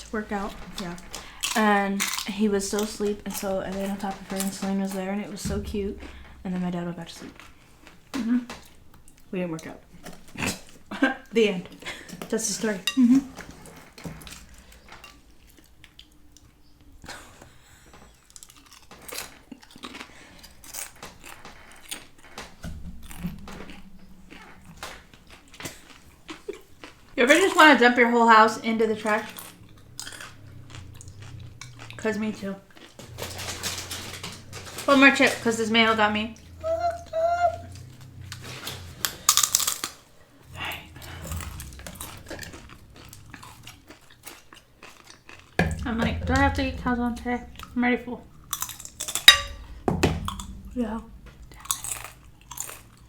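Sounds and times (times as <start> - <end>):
low steady hum: 0.0 - 17.4, 22.3 - 44.5, 45.5 - 53.0
crunching fried tortillas: 0.0 - 53.0
crunching tortilla chip: 38.1 - 40.1, 40.9 - 46.2.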